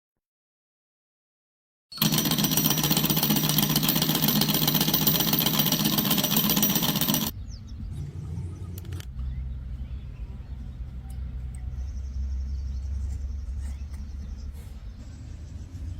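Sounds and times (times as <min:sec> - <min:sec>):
magnet engine clattering: 0:02.0 - 0:07.3.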